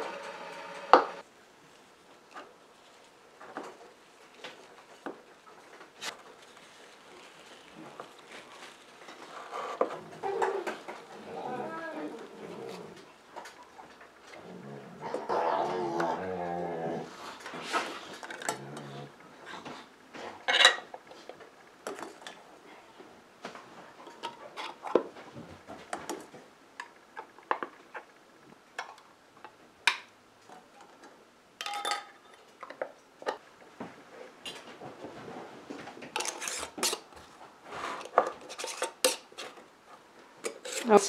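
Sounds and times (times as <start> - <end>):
glass jars and utensils clinking: 31.6 - 32.4.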